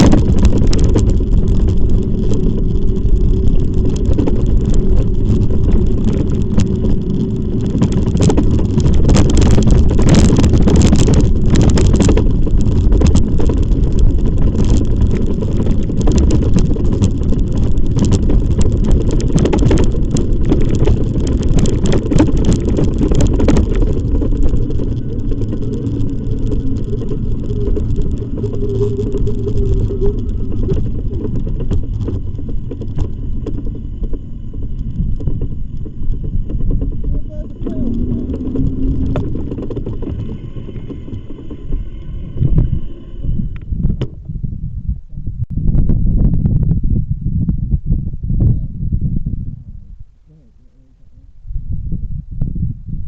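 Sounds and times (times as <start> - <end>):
tyre rumble: 0.0 - 44.7
wind buffeting microphone: 0.0 - 53.0
short steady hum: 24.0 - 44.3.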